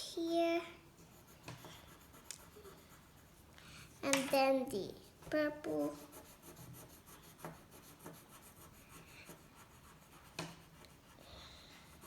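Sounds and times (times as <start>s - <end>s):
pencil scratching on paper: 1.0s - 3.5s, 5.7s - 12.0s.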